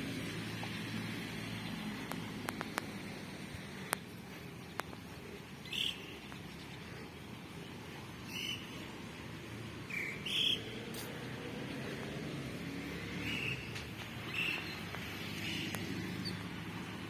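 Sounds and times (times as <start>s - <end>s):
low outdoor hum: 0.0s - 17.0s
bird chirping: 5.6s - 6.2s, 8.2s - 8.8s, 9.9s - 10.7s, 13.2s - 16.5s.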